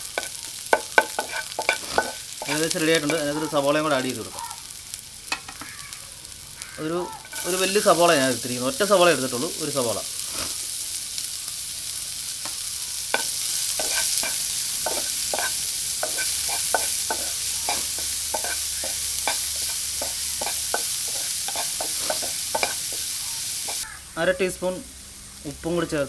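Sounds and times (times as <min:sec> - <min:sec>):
spoon scraping a pan: 0:00.0 - 0:03.4, 0:07.2 - 0:08.2, 0:12.4 - 0:23.9
onion sizzling in hot oil: 0:00.0 - 0:26.0.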